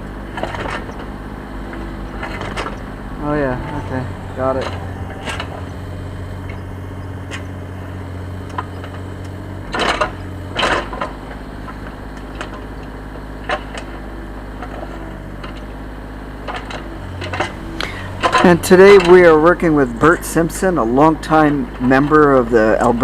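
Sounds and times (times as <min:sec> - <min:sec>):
loader engine running: 0:00.0 - 0:23.0
bucket scraping clatter: 0:17.5 - 0:19.5.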